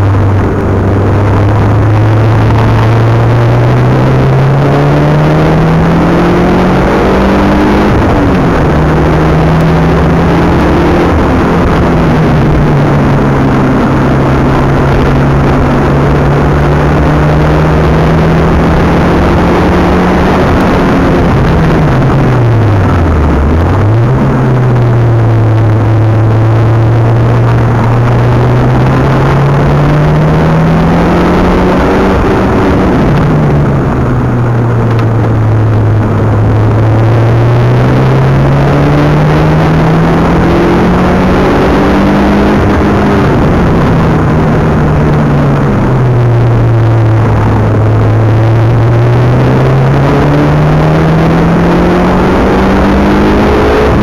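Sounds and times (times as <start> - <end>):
car engine revving: 0.0 - 54.0
road and wind noise: 0.0 - 54.0.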